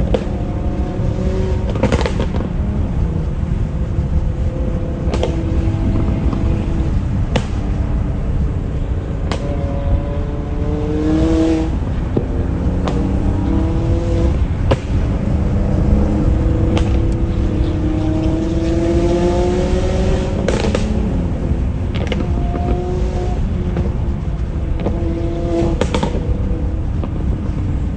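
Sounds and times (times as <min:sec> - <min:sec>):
exhaust pops: 0:00.0 - 0:27.9
sports car engine revving: 0:00.0 - 0:27.9.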